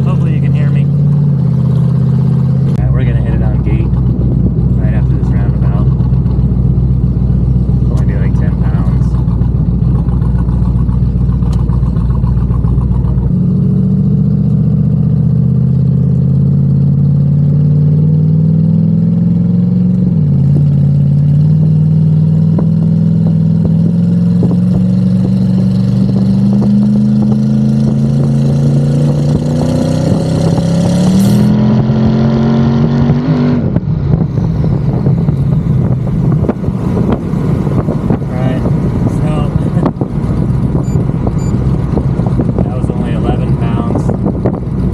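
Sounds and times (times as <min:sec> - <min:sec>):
car engine accelerating hard: 0:00.0 - 0:44.9.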